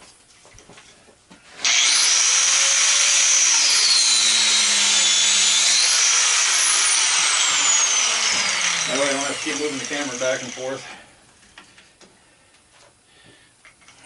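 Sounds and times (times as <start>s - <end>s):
angle grinder cutting metal: 1.6s - 10.8s.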